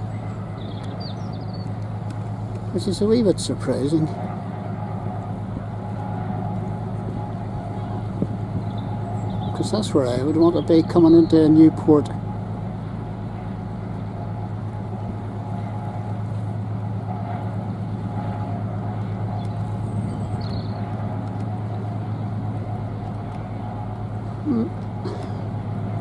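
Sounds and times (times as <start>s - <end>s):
engine drone: 0.0s - 26.0s.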